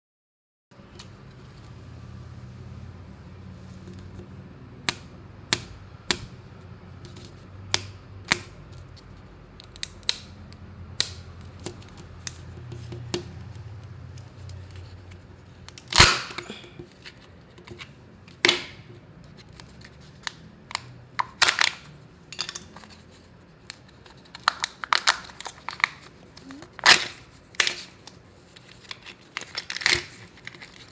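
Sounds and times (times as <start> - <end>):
loud plastic snap: 4.8 - 6.4, 11.0 - 12.4, 15.7 - 16.4.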